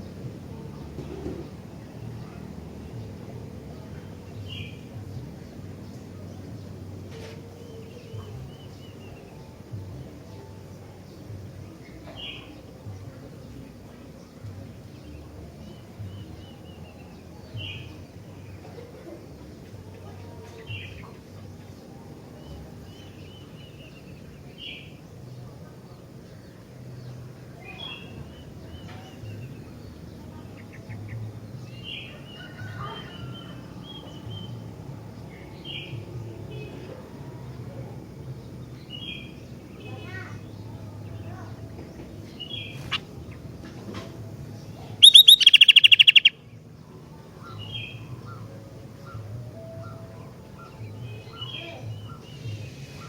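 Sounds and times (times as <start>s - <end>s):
songbird chirping and trilling: 0.0s - 53.0s
bird calling: 44.8s - 46.5s.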